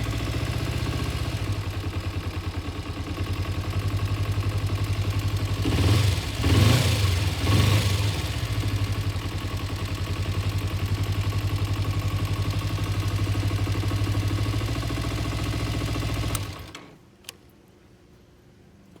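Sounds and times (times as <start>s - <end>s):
motorcycle engine revving and idling: 0.0s - 16.8s
sharp click: 16.3s - 17.5s.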